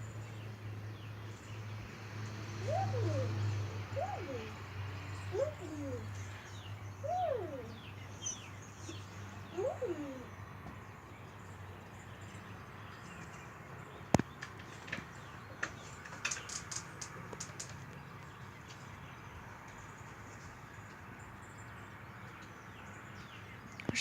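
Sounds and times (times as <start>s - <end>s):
quick light clicks and taps: 14.1s - 18.0s.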